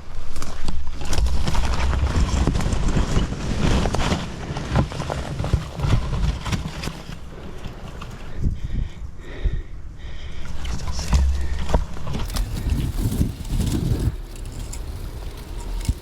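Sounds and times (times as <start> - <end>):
footsteps crunching dry ground: 11.2 - 16.0.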